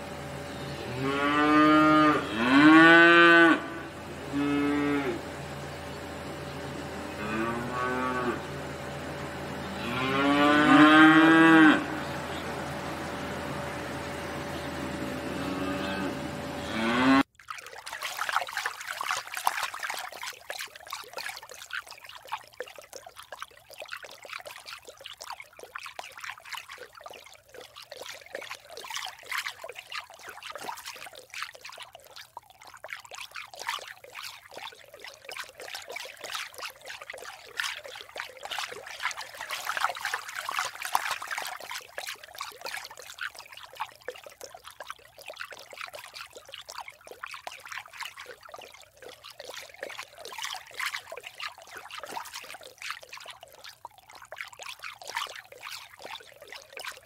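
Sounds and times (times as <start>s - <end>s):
water trickling: 16.8s - 57.0s.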